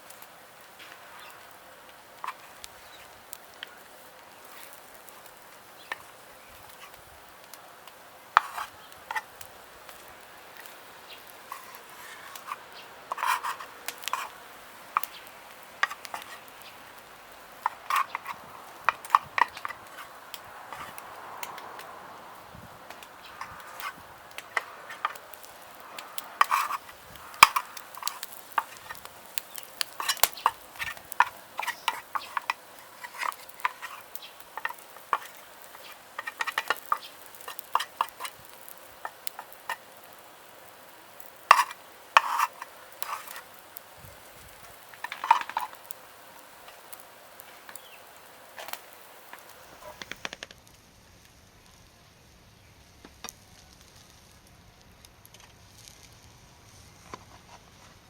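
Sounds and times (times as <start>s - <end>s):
metal utensil scraping a pan: 2.2s - 3.1s, 8.4s - 10.0s, 10.6s - 16.8s, 17.6s - 21.6s, 23.2s - 40.0s, 41.3s - 43.6s, 44.7s - 46.0s.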